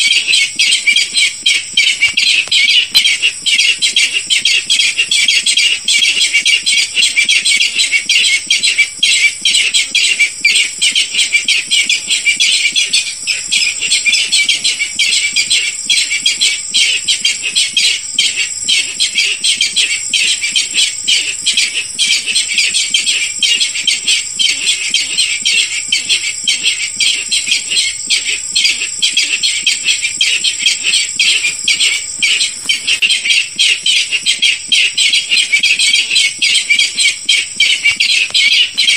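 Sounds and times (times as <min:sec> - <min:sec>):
bird calling high notes: 0:23.6 - 0:38.9.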